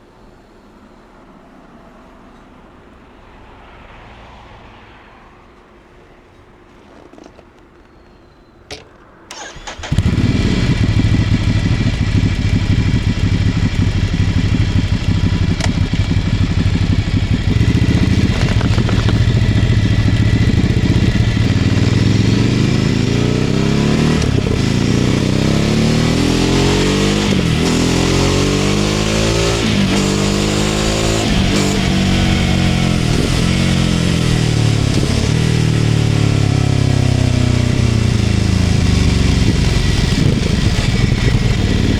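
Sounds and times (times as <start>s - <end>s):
motorcycle engine idling and revving: 9.3s - 41.9s.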